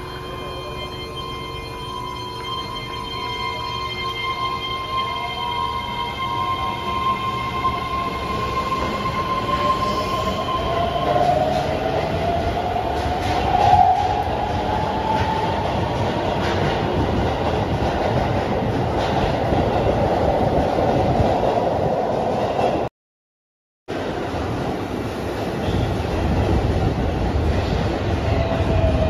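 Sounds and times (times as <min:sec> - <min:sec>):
wheels rumbling on rail: 0:07.0 - 0:22.9, 0:23.9 - 0:29.0.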